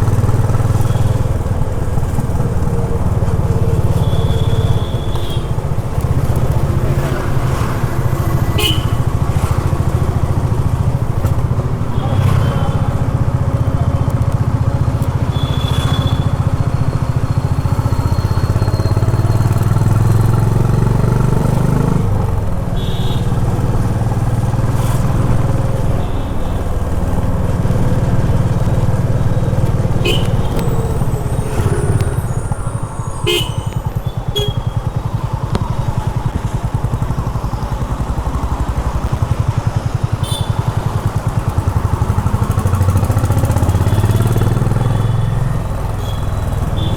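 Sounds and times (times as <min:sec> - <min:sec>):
motorcycle engine running: 0:00.0 - 0:46.9
short high traffic beeps: 0:15.2 - 0:20.1, 0:29.4 - 0:35.9.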